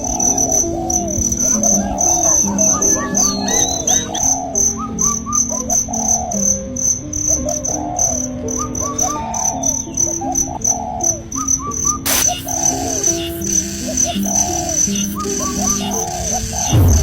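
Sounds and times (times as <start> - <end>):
crickets chirping: 0.0 - 17.0
soft background music: 0.0 - 17.0
sharp click: 12.1 - 13.2
short bird-like chirps: 12.1 - 16.8.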